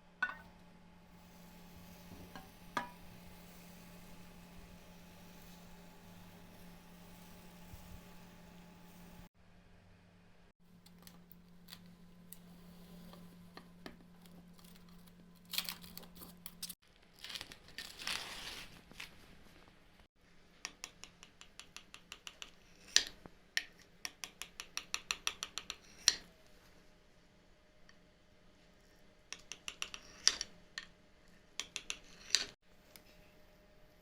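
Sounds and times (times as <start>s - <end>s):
utensils tapping against a dish: 0.2s - 0.5s, 2.2s - 3.4s
utensil scraping a dish: 1.2s - 9.3s.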